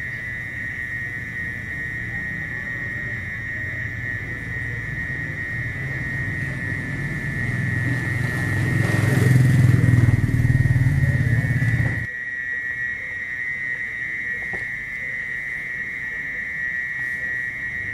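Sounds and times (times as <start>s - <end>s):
mole cricket shrill trill: 0.0s - 17.9s
vehicle engine rumble: 5.6s - 12.1s.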